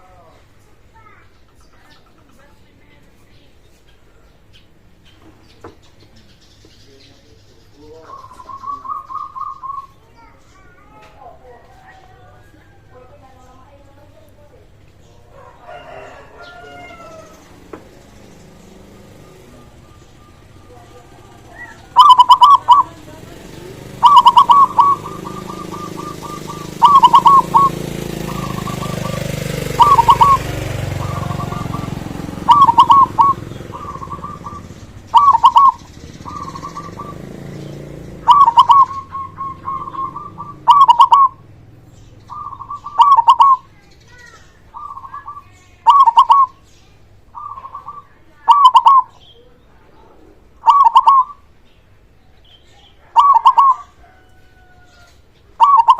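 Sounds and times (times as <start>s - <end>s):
dove cooing: 7.9s - 13.2s, 15.2s - 46.6s, 47.3s - 51.5s, 52.8s - 55.9s.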